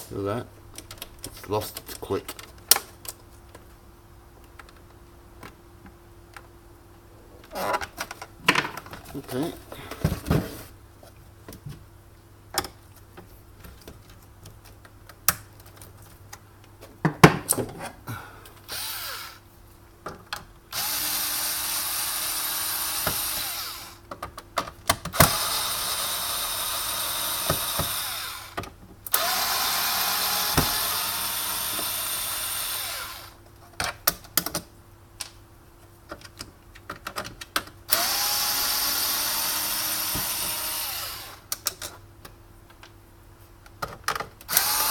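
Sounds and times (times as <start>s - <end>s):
power drill backing out screws: 25.1s - 33.4s, 37.9s - 41.4s.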